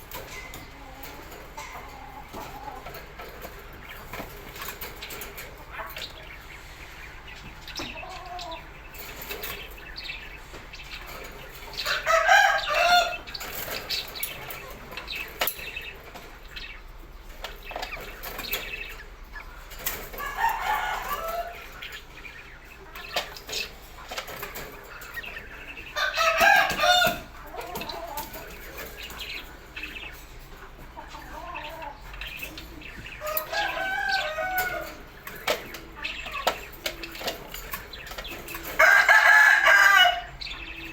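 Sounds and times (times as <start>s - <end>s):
loud bird calls: 0.0s - 40.9s.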